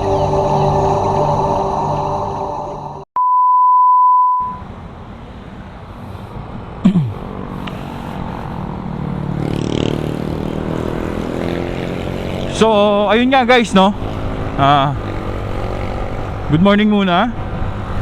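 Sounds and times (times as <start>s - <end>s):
street noise: 0.0s - 3.0s, 4.4s - 18.0s
intro music: 0.0s - 3.1s
falling tone: 0.0s - 3.3s
high test beep: 3.2s - 4.6s
motor scooter engine running: 6.6s - 16.6s.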